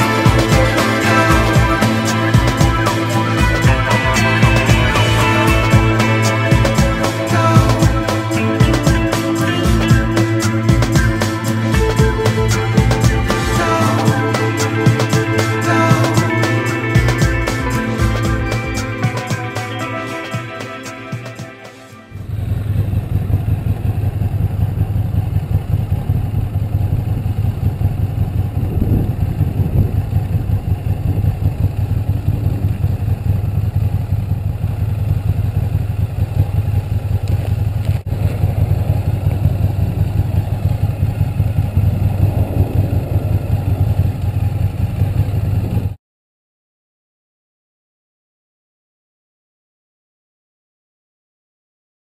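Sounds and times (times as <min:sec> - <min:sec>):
motorcycle engine idling: 0:00.0 - 0:19.8, 0:22.1 - 0:46.0
background music: 0:00.0 - 0:22.2.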